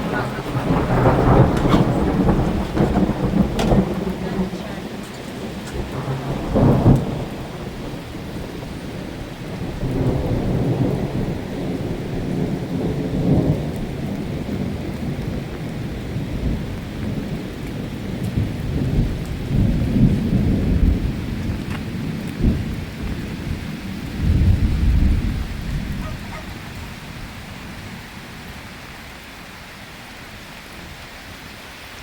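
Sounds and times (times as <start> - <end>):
deep rumbles: 0.0 - 7.7
rain falling steadily: 0.0 - 32.0.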